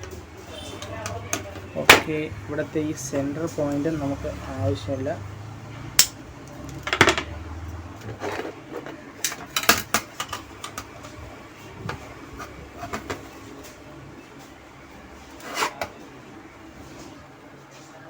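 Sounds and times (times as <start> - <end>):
hand tools clicking and tapping: 6.0 - 7.2.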